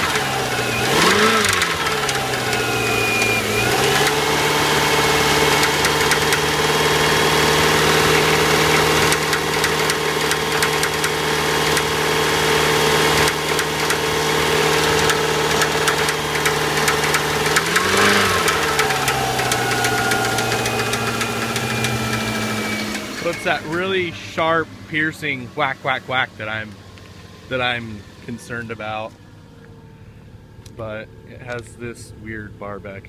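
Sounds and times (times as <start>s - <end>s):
engine knocking: 0.0s - 23.7s
car engine idling: 0.0s - 33.0s
car engine revving: 0.0s - 33.0s.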